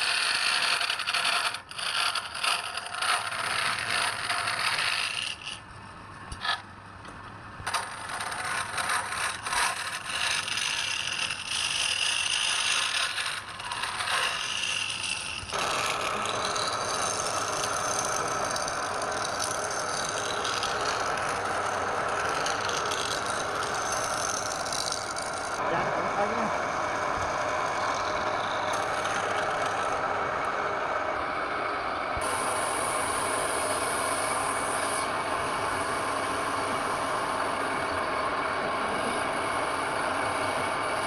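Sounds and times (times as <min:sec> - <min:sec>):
tools scraping on wood: 0:00.0 - 0:05.6, 0:06.3 - 0:06.7, 0:07.7 - 0:25.6, 0:26.2 - 0:30.0.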